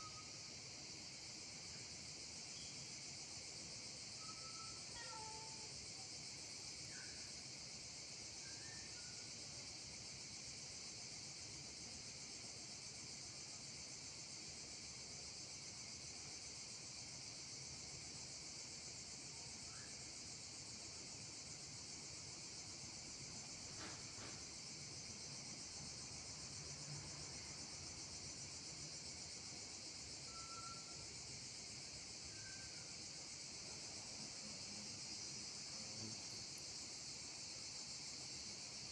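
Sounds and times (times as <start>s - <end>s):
faint bird chirps: 0.0s - 0.4s, 2.6s - 2.9s, 4.2s - 5.5s, 8.4s - 9.3s, 30.3s - 31.0s
high-pitched insect chorus: 0.0s - 38.9s.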